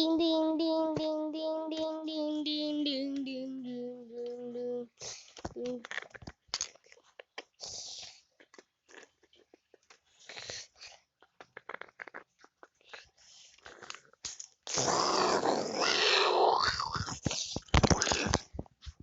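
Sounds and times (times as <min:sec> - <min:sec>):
dog growling: 0:14.8 - 0:17.1.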